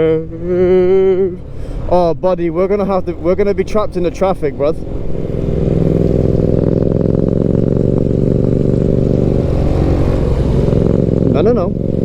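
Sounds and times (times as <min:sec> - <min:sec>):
motorcycle engine running: 0:02.9 - 0:12.0.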